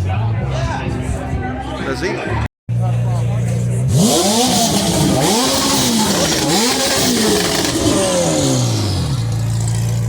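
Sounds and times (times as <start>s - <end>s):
engine revving: 3.7s - 10.0s.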